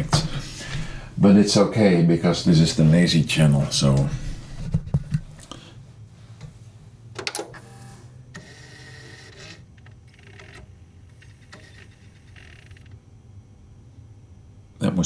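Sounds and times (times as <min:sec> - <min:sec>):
disc mechanism clicks and clatter: 0:09.1 - 0:13.0.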